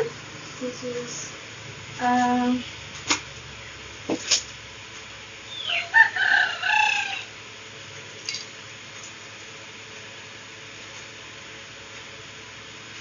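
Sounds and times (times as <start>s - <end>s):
bird crowing: 5.5s - 7.4s.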